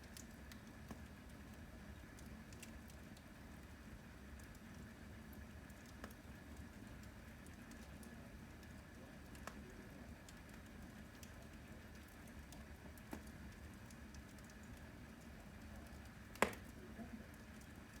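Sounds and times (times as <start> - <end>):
fire popping and cracking: 0.0 - 1.5, 2.2 - 3.3, 5.7 - 9.7, 10.3 - 17.7
wood fire crackling: 0.0 - 18.0.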